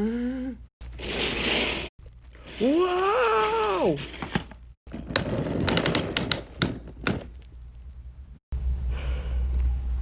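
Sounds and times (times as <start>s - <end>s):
train clicks and knocks: 5.0s - 7.4s.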